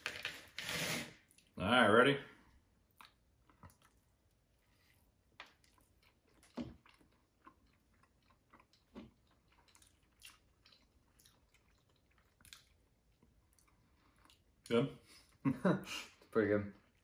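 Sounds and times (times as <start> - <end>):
faint chewing: 2.5 - 15.4.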